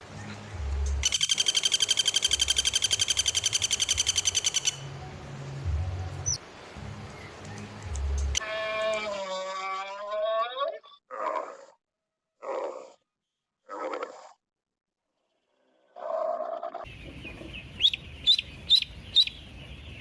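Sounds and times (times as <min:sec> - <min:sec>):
animal high-pitched pulsed trill: 0:01.0 - 0:04.9.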